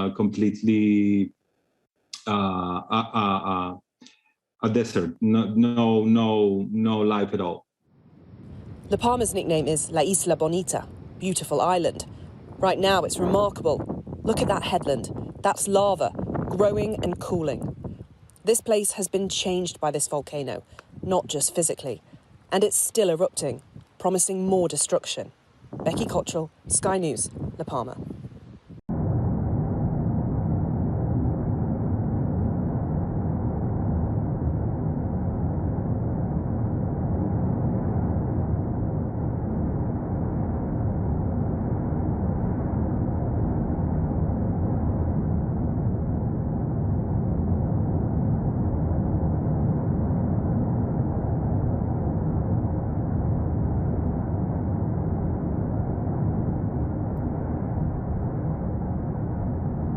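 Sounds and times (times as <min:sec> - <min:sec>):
low rumbling noise: 0:04.6 - 0:59.9
volcano erupting low roar: 0:28.9 - 0:59.9.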